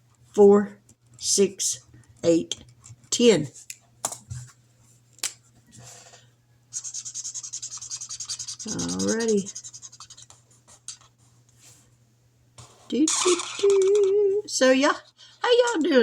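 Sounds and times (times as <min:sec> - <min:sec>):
marker scribbling on paper: 0:06.7 - 0:11.1.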